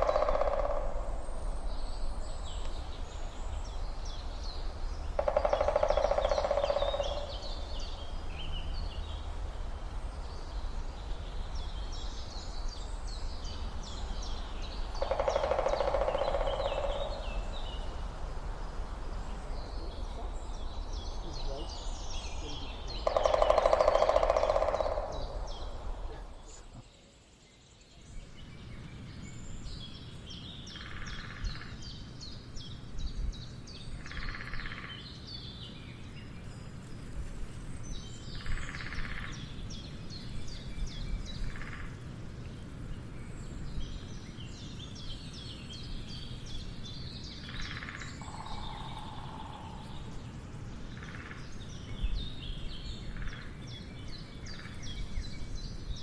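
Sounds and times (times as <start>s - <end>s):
woodpecker drumming: 0.0s - 1.4s, 4.7s - 8.2s, 13.8s - 18.6s, 19.9s - 26.9s, 34.0s - 35.0s, 38.4s - 39.5s, 47.4s - 50.2s, 51.0s - 51.6s
small birds chirping: 0.0s - 56.0s.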